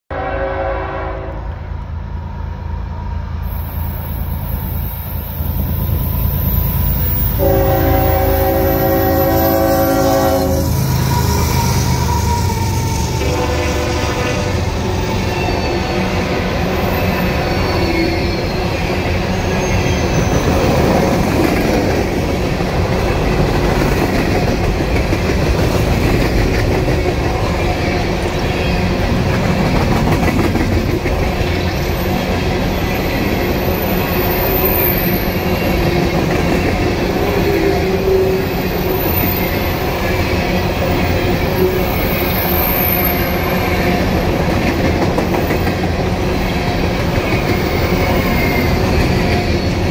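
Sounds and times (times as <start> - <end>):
train wheels rumbling over rails: 3.4 - 49.9
faint high-pitched wheel squeal: 3.5 - 13.1.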